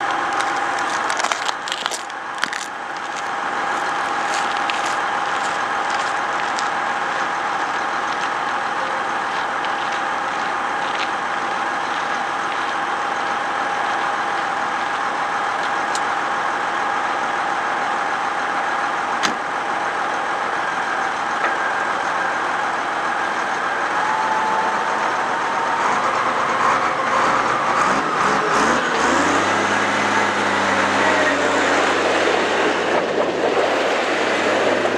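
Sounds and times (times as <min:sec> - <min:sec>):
clicks and crackles: 0:00.0 - 0:06.1
engine with high whine: 0:04.6 - 0:34.9.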